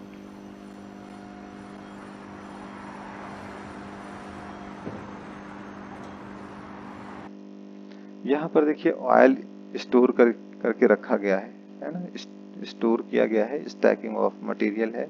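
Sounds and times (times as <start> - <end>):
faint noisy rumble: 0.0 - 7.3.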